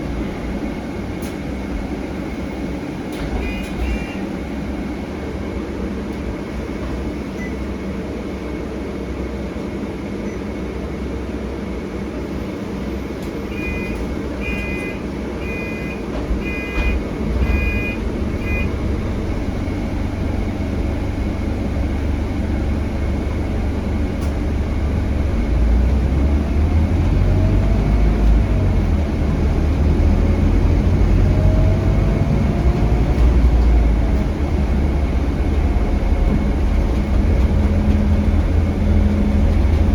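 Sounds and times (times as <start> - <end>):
bus diesel engine rumble: 0.0 - 39.9
electronic beeps: 13.6 - 18.8
rising engine whines: 16.4 - 39.9.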